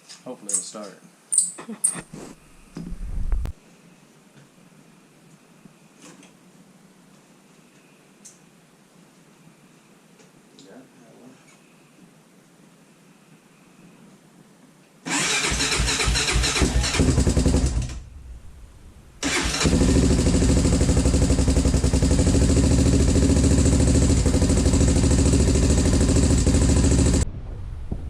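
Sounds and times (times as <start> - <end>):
engine cranking and sputtering: 15.1 - 18.3, 19.2 - 27.2
single-cylinder engine running: 15.1 - 27.2.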